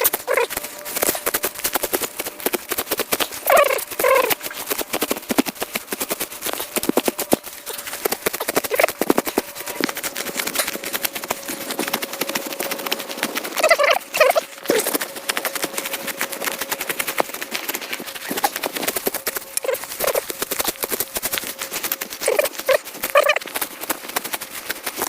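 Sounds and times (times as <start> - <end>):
turkeys gobbling: 0.0 - 11.6, 13.5 - 15.4, 17.7 - 21.3, 22.1 - 23.7
sickle cutting grass: 0.0 - 25.0.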